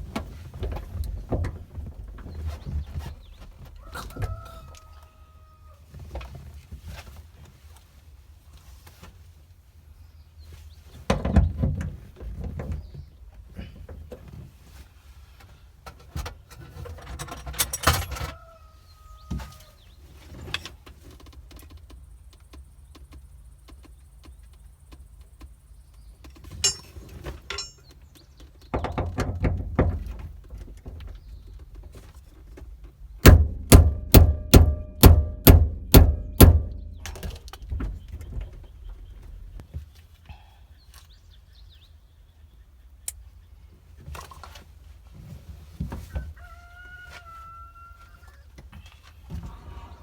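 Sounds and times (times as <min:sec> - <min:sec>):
handling knocks and clicks: 0:26.0 - 0:38.8
sharp loud taps: 0:33.2 - 0:37.2.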